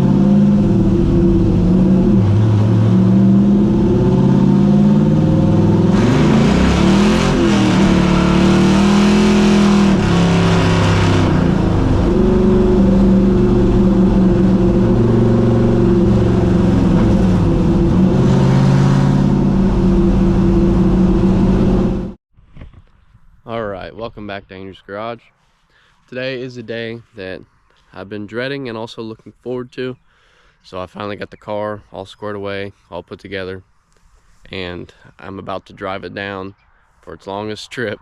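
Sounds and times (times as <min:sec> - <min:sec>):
loud car engine revving: 0:00.0 - 0:22.2.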